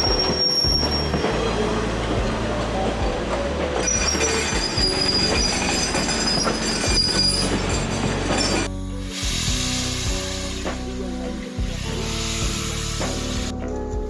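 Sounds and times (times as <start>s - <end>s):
high-pitched wheel squeal: 0.0s - 2.2s, 2.9s - 8.7s
steam locomotive rumbling on rails: 0.0s - 13.5s.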